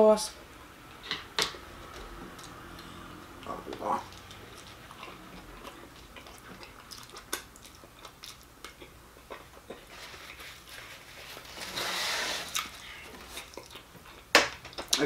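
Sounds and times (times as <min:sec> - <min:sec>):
chewing with wet mouth clicks: 0:02.3 - 0:10.4, 0:13.3 - 0:15.0.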